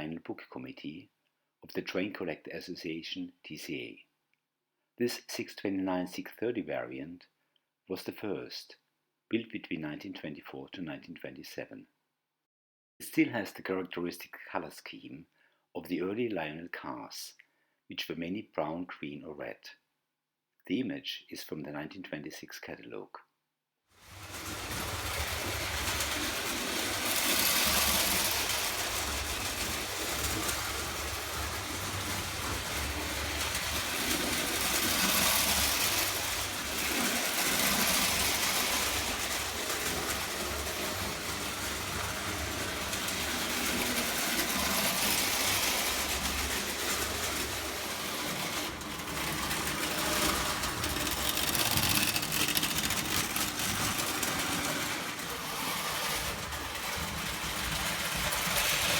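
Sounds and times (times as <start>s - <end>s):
toy train motor hum: 24.0s - 58.9s
wheels rolling on rails: 24.0s - 58.9s.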